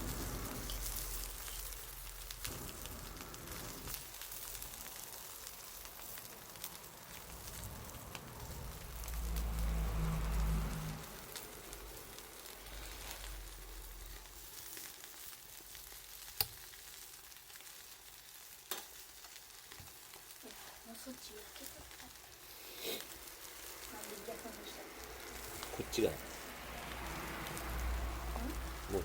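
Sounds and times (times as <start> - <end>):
fire crackling and popping: 0.0 - 29.0
food sizzling on grill: 0.0 - 29.0
low rumble: 7.1 - 14.4.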